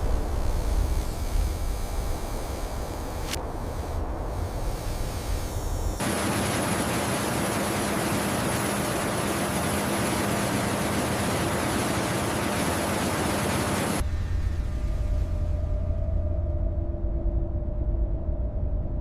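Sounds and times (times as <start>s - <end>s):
steady rushing noise: 0.0s - 15.9s.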